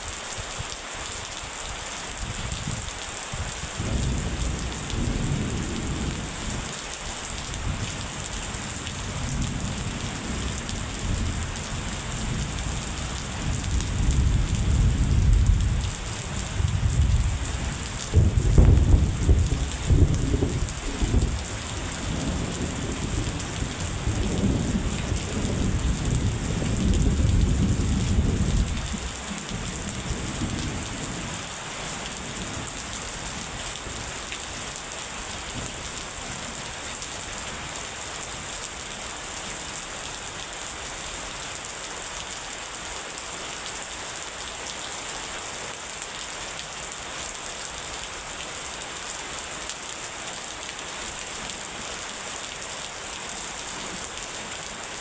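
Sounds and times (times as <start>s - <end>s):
heavy rain falling: 0.0s - 55.0s
thunder rumbling: 3.8s - 6.6s, 7.5s - 30.9s.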